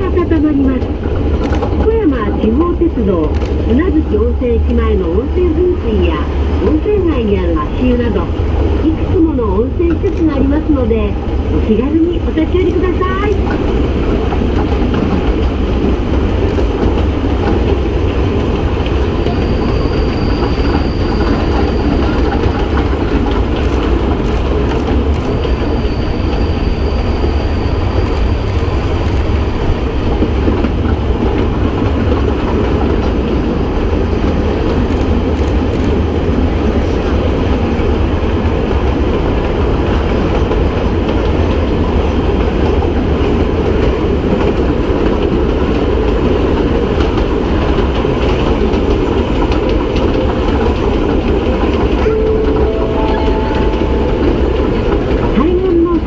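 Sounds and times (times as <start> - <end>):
train wheels rumbling on rail: 0.0 - 56.0
faint high squeal: 19.3 - 22.2, 25.4 - 28.6.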